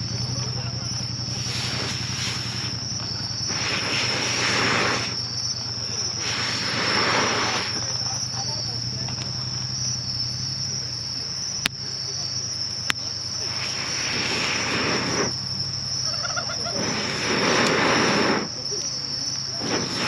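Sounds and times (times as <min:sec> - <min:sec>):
rushing noise: 0:00.0 - 0:08.6, 0:13.3 - 0:18.7, 0:19.4 - 0:20.0
insects chirring: 0:00.0 - 0:20.0
sharp clicks: 0:11.6 - 0:11.8.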